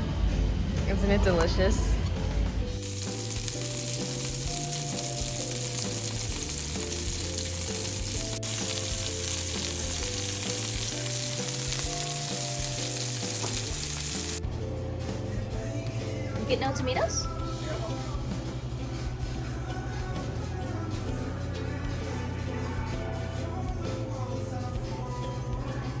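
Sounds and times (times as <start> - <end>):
background music melody: 1.4 - 26.0
food sizzling: 2.7 - 14.4.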